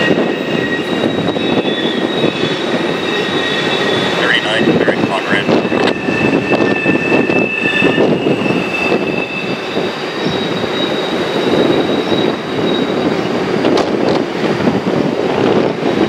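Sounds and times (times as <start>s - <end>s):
high-pitched wheel squeals: 0.0s - 4.3s, 5.5s - 13.3s
freight cars rumbling on bridge: 0.0s - 16.0s.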